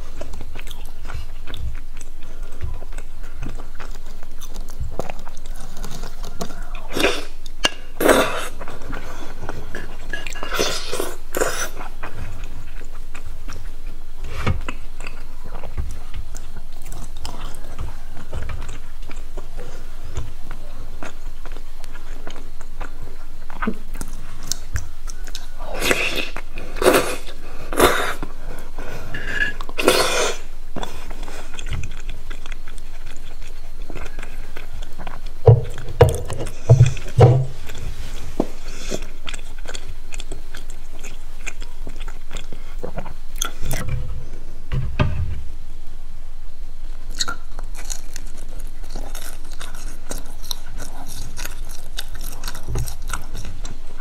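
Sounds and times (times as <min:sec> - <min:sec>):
chewing crispy food: 0:00.0 - 0:43.9, 0:46.8 - 0:54.0
loud low thumps: 0:35.4 - 0:37.6.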